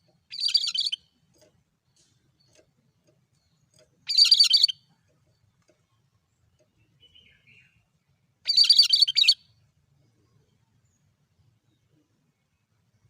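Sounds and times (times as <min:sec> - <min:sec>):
bird singing high-pitched phrases: 0:00.3 - 0:01.1, 0:04.1 - 0:04.8, 0:06.8 - 0:07.8, 0:08.5 - 0:09.5.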